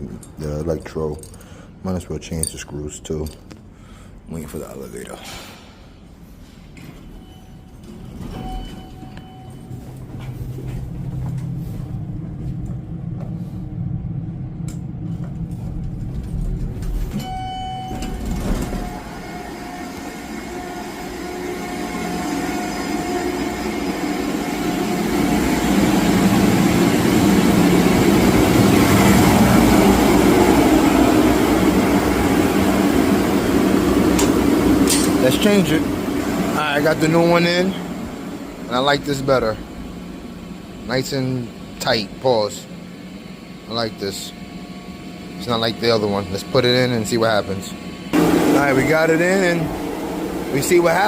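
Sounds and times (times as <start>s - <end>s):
elevator mechanical hum: 0.0s - 51.0s
elevator chime: 6.9s - 10.3s, 17.1s - 21.5s
elevator doors clicking: 15.4s - 20.2s.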